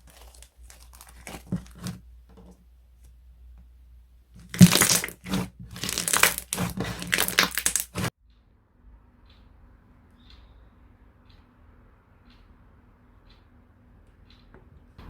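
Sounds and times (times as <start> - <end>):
crunchy slime crackling: 0.0 - 2.0, 4.4 - 8.1.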